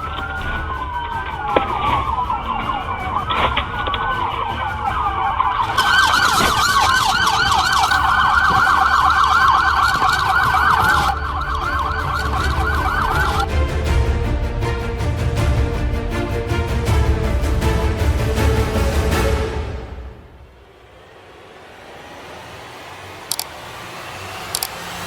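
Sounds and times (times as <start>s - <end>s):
police sirens wailing and yelping: 0.0s - 14.2s.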